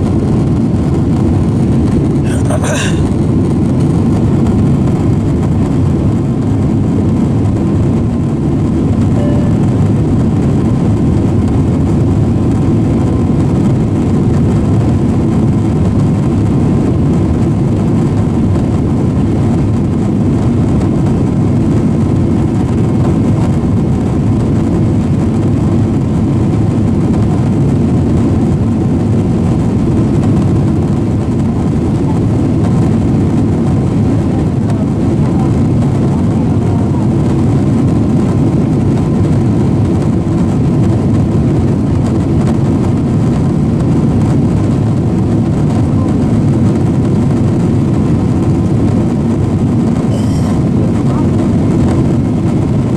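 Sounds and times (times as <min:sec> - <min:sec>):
airliner cabin rumble: 0:00.0 - 0:52.9.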